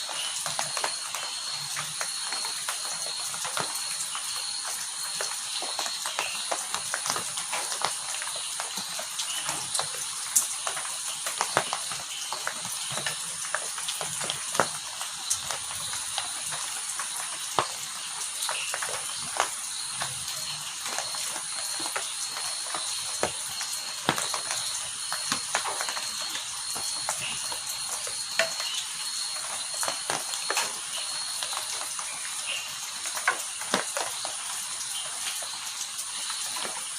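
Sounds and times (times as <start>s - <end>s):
heavy rain hissing: 0.0s - 36.9s
raindrops splashing on hard surfaces: 0.0s - 36.9s.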